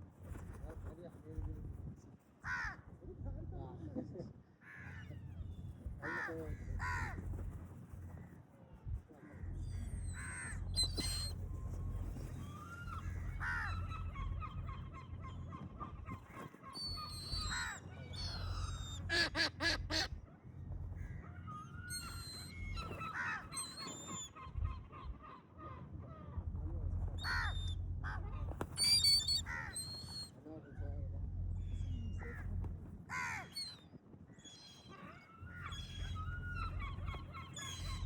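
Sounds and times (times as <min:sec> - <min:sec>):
crows cawing: 0:02.4 - 0:02.9, 0:04.6 - 0:05.1, 0:06.0 - 0:07.2, 0:09.3 - 0:11.3, 0:12.5 - 0:15.1, 0:16.8 - 0:20.1, 0:22.0 - 0:24.2, 0:27.2 - 0:28.2, 0:28.8 - 0:30.2, 0:33.1 - 0:33.8
low rumble: 0:02.8 - 0:04.2, 0:04.9 - 0:08.2, 0:08.8 - 0:16.3, 0:16.9 - 0:23.7, 0:24.5 - 0:33.8, 0:35.5 - 0:38.0
gulls crying: 0:09.4 - 0:20.2, 0:21.0 - 0:30.4.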